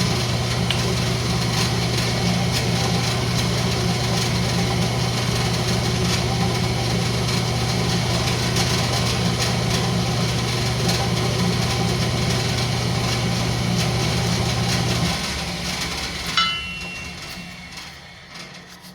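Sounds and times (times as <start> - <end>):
wood lathe motor hum: 0.0 - 18.9.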